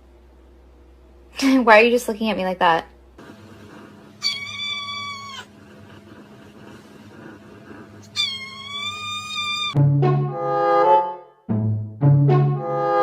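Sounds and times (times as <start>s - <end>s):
cat meowing: 4.2s - 5.6s, 8.0s - 9.8s.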